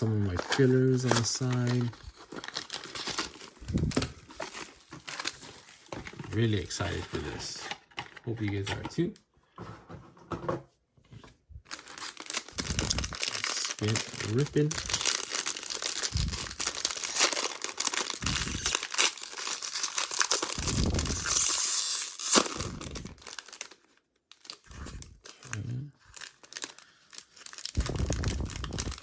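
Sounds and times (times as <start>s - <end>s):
card packaging tearing and crinkling: 0.0s - 8.7s, 11.7s - 29.0s.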